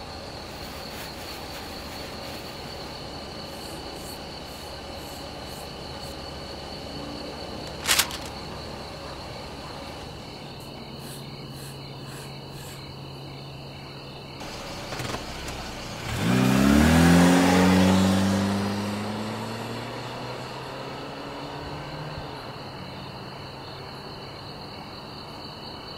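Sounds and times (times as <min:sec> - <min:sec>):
crickets chirping: 0:00.0 - 0:25.9
car engine starting and revving: 0:14.4 - 0:23.2.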